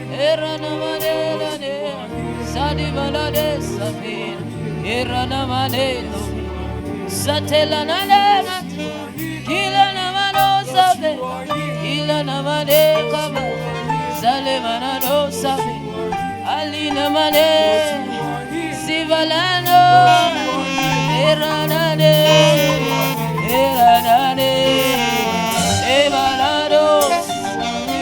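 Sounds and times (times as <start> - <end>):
sustained bass notes: 2.1 - 10.9, 11.5 - 28.0
saxophone melody with vibrato: 11.5 - 28.0.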